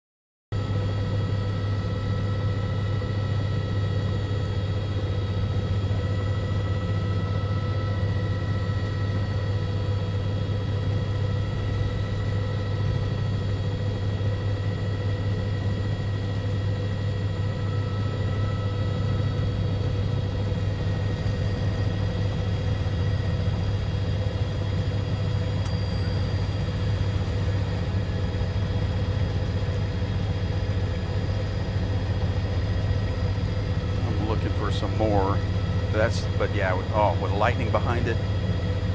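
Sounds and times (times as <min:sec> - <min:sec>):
constant whining tones: 0:00.6 - 0:38.9
low engine drone: 0:00.6 - 0:38.9.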